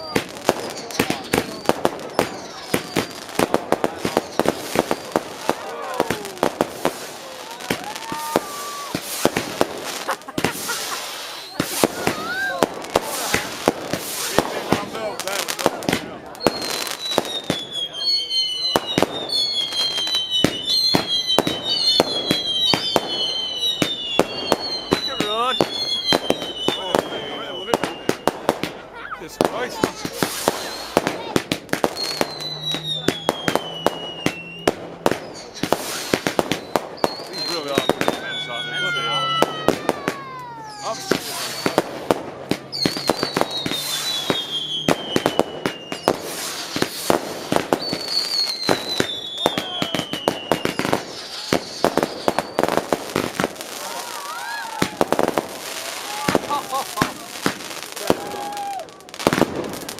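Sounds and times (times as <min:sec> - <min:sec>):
fireworks banging: 0:00.0 - 0:59.9
fireworks whistling: 0:00.0 - 0:59.9.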